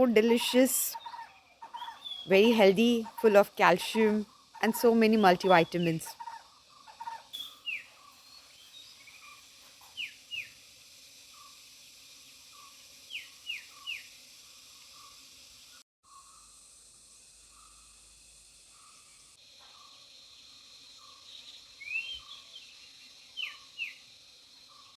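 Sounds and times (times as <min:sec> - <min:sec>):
steady high hiss: 0:07.3 - 0:25.0
bird sharp downward-sliding calls: 0:21.8 - 0:22.6.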